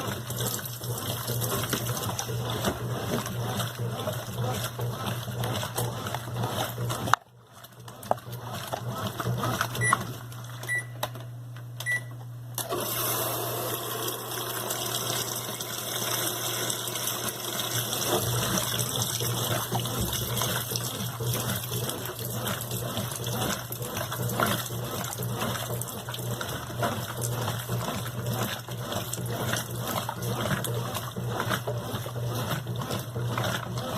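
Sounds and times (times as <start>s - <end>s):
short beeps: 11.8s - 12.1s.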